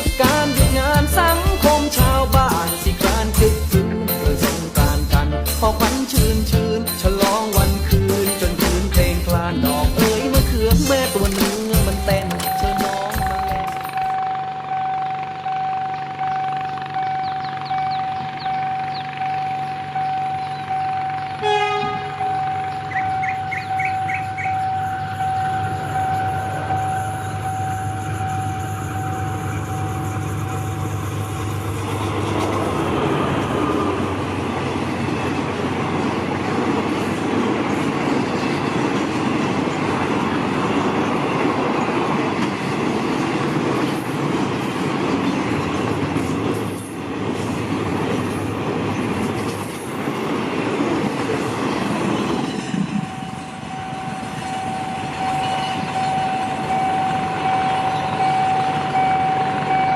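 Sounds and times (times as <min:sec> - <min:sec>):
train wheels rolling past: 0:02.1 - 0:59.9
wheels clicking over rail joints: 0:08.2 - 0:14.2, 0:22.1 - 0:53.1.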